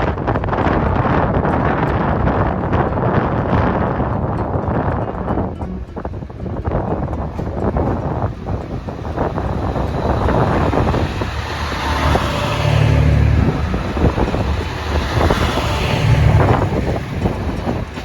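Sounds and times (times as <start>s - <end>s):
diesel generator hum: 5.6s - 18.0s
diesel railcar rumbling past: 5.6s - 18.0s.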